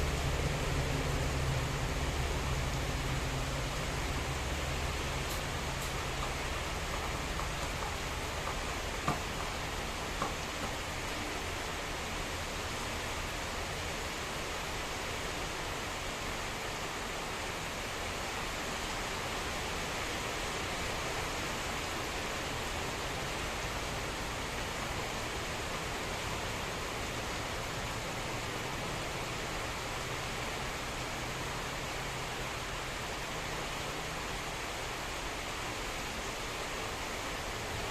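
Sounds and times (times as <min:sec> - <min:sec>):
rain pouring: 0:00.0 - 0:37.9.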